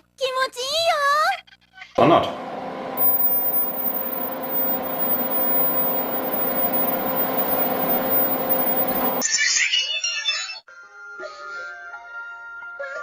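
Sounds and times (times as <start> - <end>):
machine hum: 3.0 - 9.2.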